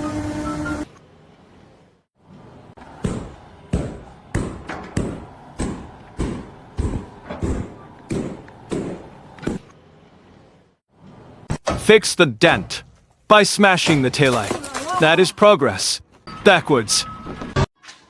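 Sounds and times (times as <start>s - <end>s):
heavy thuds: 2.8s - 9.7s.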